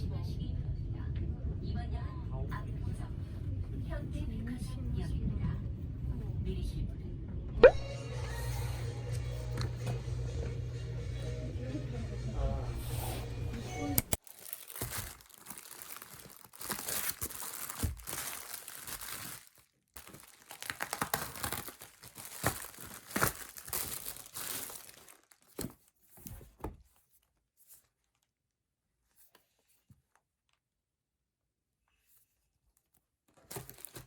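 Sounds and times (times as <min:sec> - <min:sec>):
packaging crinkling and tearing: 0:14.0 - 0:26.5, 0:27.3 - 0:28.3, 0:33.3 - 0:34.0.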